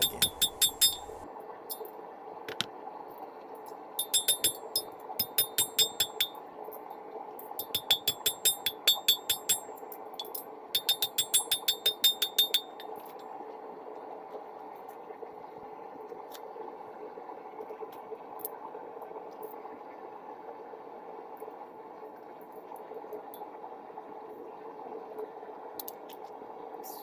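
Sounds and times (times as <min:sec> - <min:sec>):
hammer striking rebar on anvil: 0:00.0 - 0:01.2, 0:04.0 - 0:04.6, 0:05.2 - 0:06.4, 0:07.6 - 0:09.7, 0:10.8 - 0:12.8.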